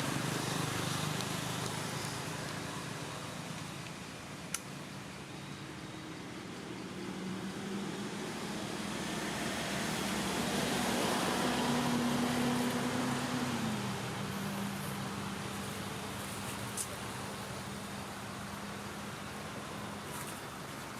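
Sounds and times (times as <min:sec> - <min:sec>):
vehicle engine passing by: 0:06.8 - 0:16.4.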